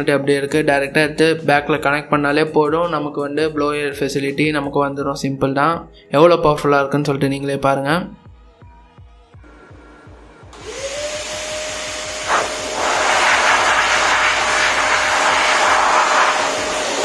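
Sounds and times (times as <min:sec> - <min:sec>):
faint background music with beat: 0:00.0 - 0:12.3
vacuum cleaner motor whine: 0:09.4 - 0:17.0
rush of blown air: 0:10.6 - 0:17.0.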